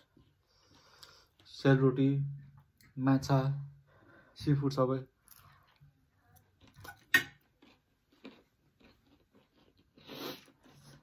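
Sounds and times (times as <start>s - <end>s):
chewing and crunching food: 5.2s - 11.0s.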